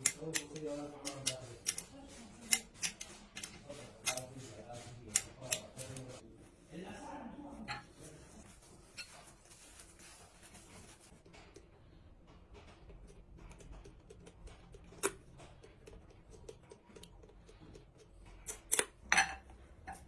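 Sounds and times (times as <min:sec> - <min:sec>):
metal tools clicking and tapping: 0:00.0 - 0:04.4, 0:12.3 - 0:20.0.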